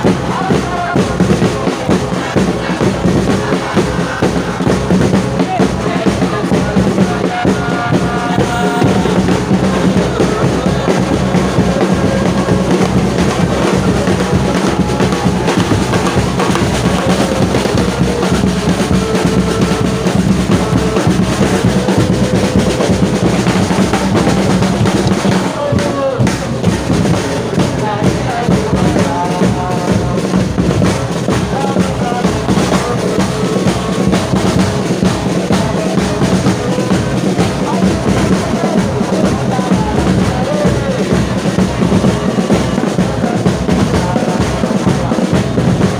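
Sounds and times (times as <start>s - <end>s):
drums beating: 0.0s - 45.9s
stadium crowd singing and chanting: 0.0s - 45.9s.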